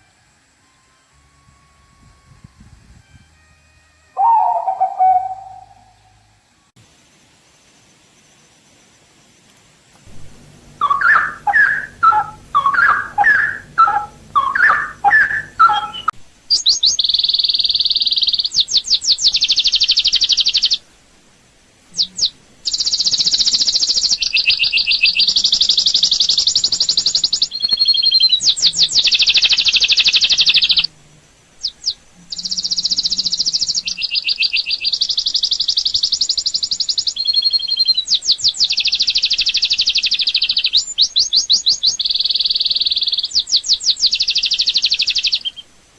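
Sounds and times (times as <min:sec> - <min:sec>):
high trilling bird chatter: 0:04.2 - 0:06.1, 0:10.1 - 0:20.8, 0:22.0 - 0:30.9, 0:31.6 - 0:45.6
birds singing: 0:04.2 - 0:06.2, 0:10.1 - 0:20.8, 0:21.9 - 0:30.9, 0:31.6 - 0:45.7.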